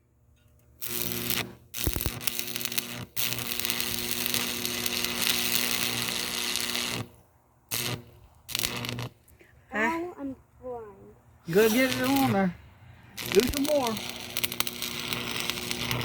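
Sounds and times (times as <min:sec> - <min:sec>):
welder humming: 0:00.8 - 0:09.3, 0:11.5 - 0:16.0
welding arc crackling: 0:00.8 - 0:09.3, 0:11.5 - 0:12.5, 0:13.2 - 0:16.0.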